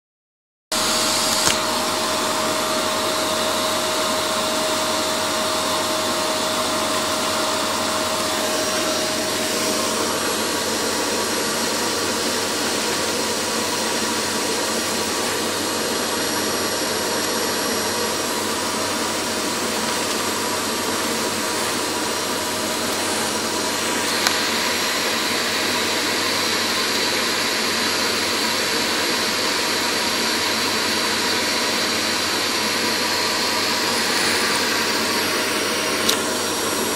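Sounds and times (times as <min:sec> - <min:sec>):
vacuum cleaner rushing: 0:00.7 - 0:36.9
click: 0:01.3 - 0:01.6, 0:36.0 - 0:36.2.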